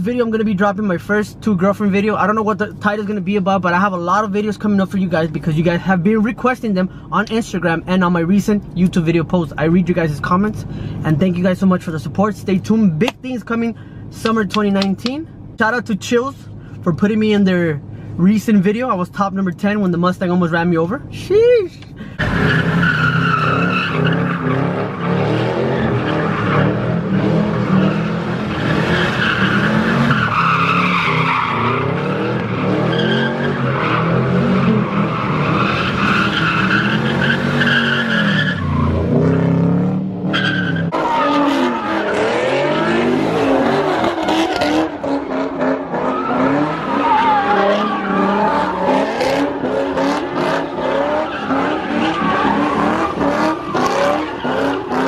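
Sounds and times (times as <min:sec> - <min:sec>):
car engines revving: 0:21.8 - 0:55.0
tyres squealing: 0:22.2 - 0:39.0, 0:40.3 - 0:55.0.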